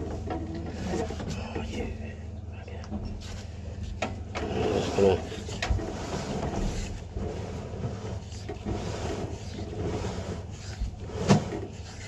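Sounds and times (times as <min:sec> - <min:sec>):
push rod scraping in drain pipe: 0:04.3 - 0:12.0.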